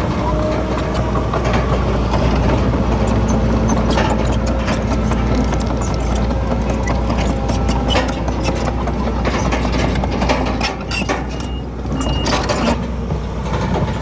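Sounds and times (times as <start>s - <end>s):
clanks and rattles: 0.0s - 14.0s
heavy machinery diesel engine: 0.0s - 14.0s
short high squeaks: 2.4s - 12.8s.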